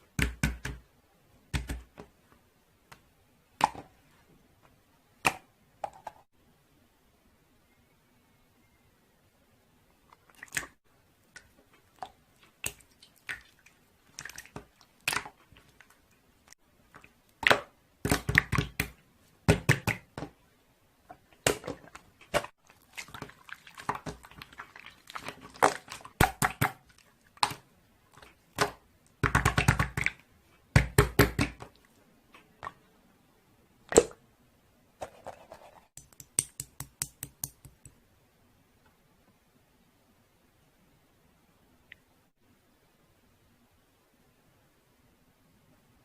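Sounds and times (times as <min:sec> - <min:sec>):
handling taps and clicks: 0:36.0 - 0:38.0.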